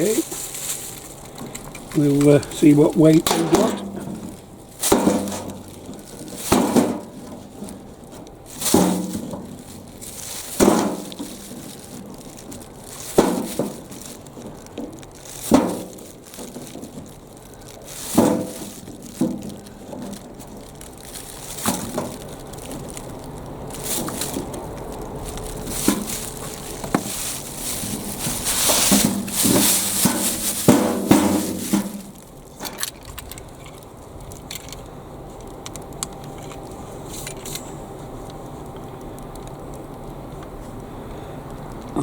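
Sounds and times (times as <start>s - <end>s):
potatoes knocking into container: 0.0s - 7.8s, 8.5s - 22.9s, 23.7s - 33.2s
rustling: 0.0s - 41.0s.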